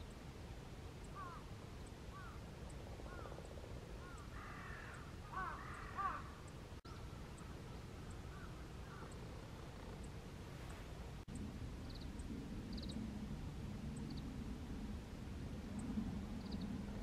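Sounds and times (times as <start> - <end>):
bird calls: 1.0 - 2.4, 3.0 - 10.8
harsh bird calls: 3.0 - 10.1
steady low rumble: 6.4 - 17.0.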